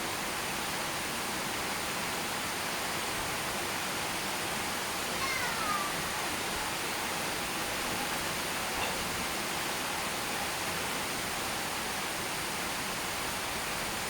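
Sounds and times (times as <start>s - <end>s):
rainfall hiss: 0.0s - 14.0s
falling animal call: 5.2s - 6.0s.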